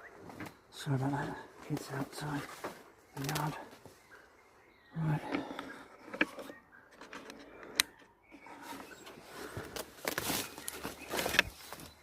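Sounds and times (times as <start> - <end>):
footsteps through undergrowth: 0.2 - 4.2, 8.4 - 12.0.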